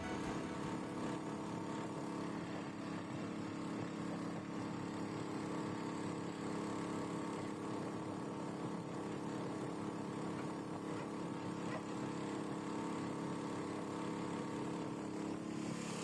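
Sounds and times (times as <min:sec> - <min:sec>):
boat motor running: 0:00.0 - 0:01.5.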